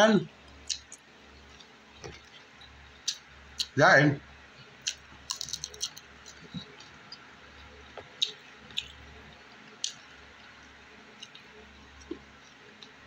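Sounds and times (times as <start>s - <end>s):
man chewing close to microphone: 0.4s - 3.8s, 4.5s - 13.0s
wet mouth clicks and lip smacks: 3.1s - 3.7s, 4.8s - 7.0s, 9.8s - 10.0s.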